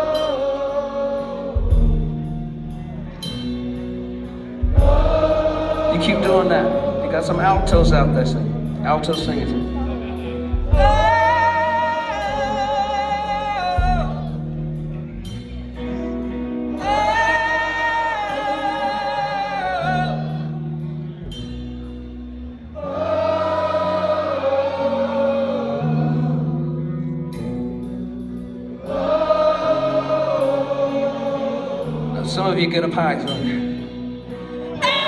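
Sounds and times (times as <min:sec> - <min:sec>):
voices singing held notes: 0:00.0 - 0:21.6, 0:22.6 - 0:35.0
soft band accompaniment: 0:00.0 - 0:35.0.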